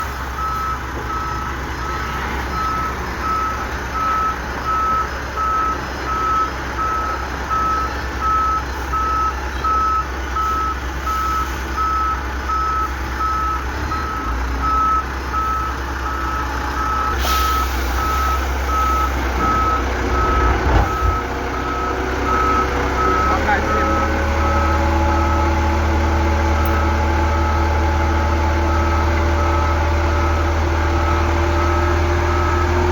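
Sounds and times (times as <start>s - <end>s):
truck engine running: 0.0s - 32.9s
reversing alarm beeping: 0.4s - 25.8s.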